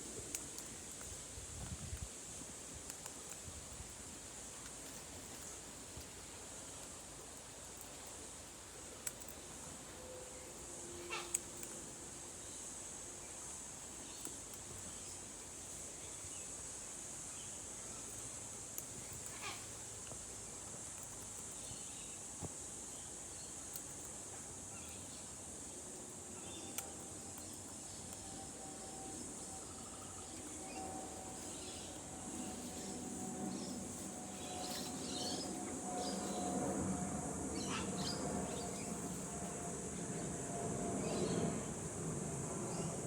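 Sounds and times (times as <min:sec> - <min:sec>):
high-pitched insect drone: 0:27.9 - 0:43.0.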